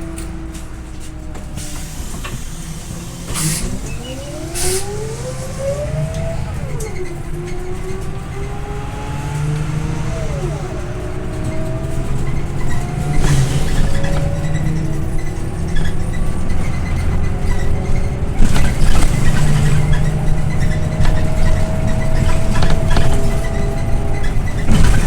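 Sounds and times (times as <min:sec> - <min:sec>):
bus diesel engine accelerating: 0:00.0 - 0:25.0
short hisses: 0:01.7 - 0:04.0.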